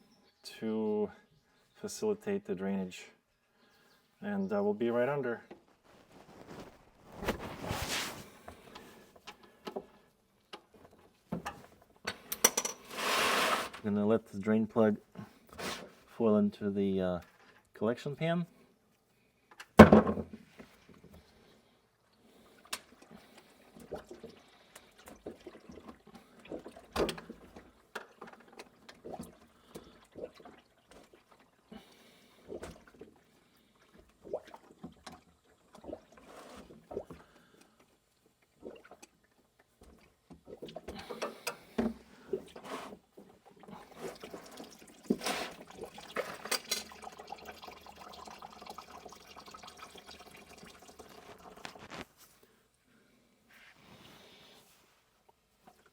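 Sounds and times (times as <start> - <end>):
oil pouring and splashing: 20.7 - 52.2.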